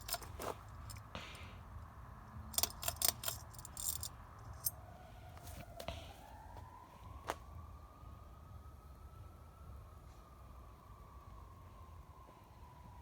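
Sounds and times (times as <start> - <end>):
fan pull chain rattling: 0.0 - 1.4, 2.4 - 4.7
fan motor whine: 0.0 - 8.2.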